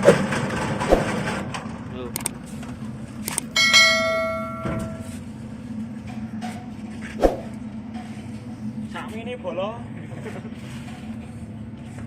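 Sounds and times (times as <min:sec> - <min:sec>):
steady low hum: 0:00.0 - 0:12.0
metal object ringing like a bell: 0:03.6 - 0:05.1.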